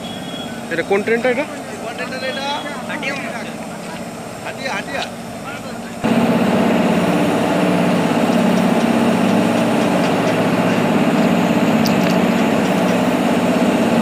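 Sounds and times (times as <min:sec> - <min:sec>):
diesel locomotive engine running: 0:00.0 - 0:14.0.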